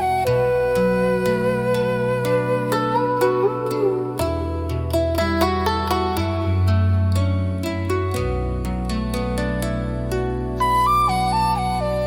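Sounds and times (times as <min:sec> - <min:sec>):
flute melody: 0:00.0 - 0:06.3, 0:10.4 - 0:12.0.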